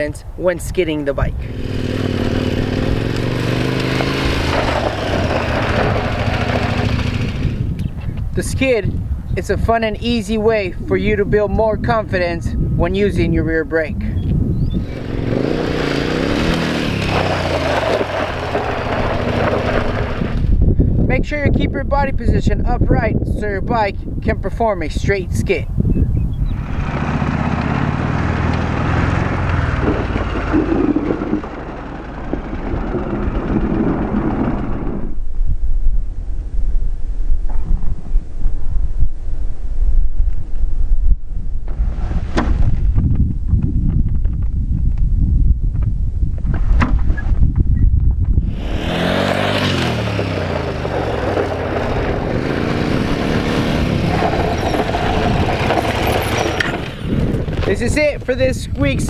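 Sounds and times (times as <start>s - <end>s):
wind on microphone: 0.0s - 59.0s
motorcycle engine running low: 1.4s - 8.2s, 14.1s - 21.6s, 25.9s - 36.3s, 42.4s - 59.0s
tyres on gravel: 1.5s - 8.2s, 14.9s - 20.7s, 26.6s - 35.0s, 48.5s - 59.0s.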